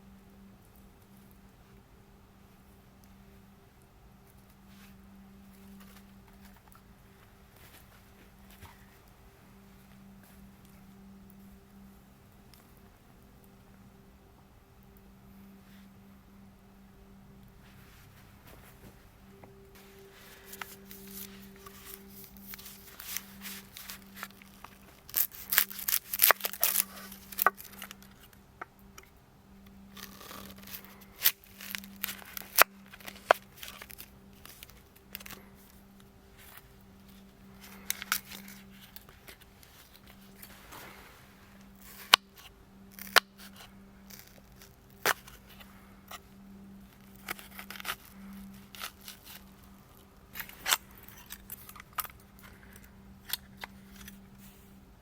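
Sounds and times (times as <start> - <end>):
low hum: 0.0 - 55.0
campfire crackling: 17.1 - 55.0.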